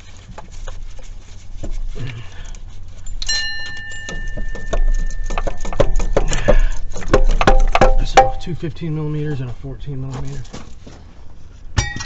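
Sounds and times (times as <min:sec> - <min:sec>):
metal piece ringing when struck: 0:03.2 - 0:05.4, 0:07.4 - 0:08.6, 0:11.8 - 0:12.0.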